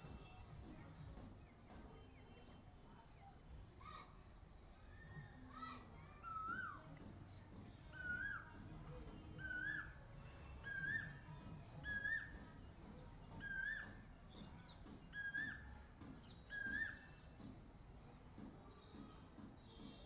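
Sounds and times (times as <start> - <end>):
cuckoo calling: 6.1 - 6.9, 7.9 - 8.6, 9.4 - 17.4.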